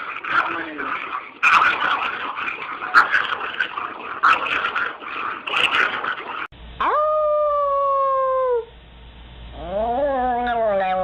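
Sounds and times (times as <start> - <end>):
noisy clatter: 0.0 - 6.5
dog howling: 9.6 - 11.0.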